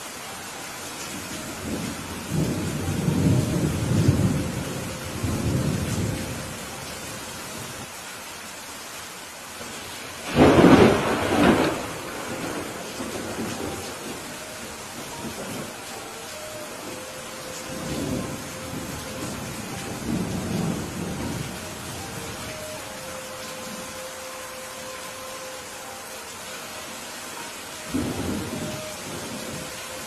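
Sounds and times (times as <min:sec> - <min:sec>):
steady rain: 0:00.0 - 0:30.0
thunder rumbling: 0:01.6 - 0:06.7, 0:10.2 - 0:15.8, 0:16.7 - 0:22.5, 0:27.9 - 0:29.9.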